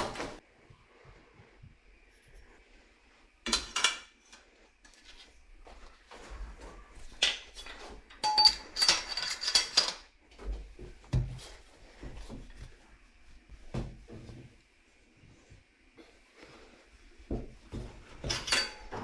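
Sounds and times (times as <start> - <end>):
metal tools clinking: 7.2 - 10.1, 18.2 - 19.0.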